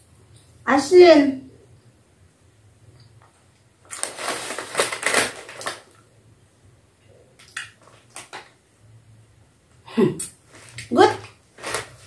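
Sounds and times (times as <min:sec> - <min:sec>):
snack packet crinkling: 0:03.8 - 0:06.1, 0:07.4 - 0:08.6, 0:10.5 - 0:12.0.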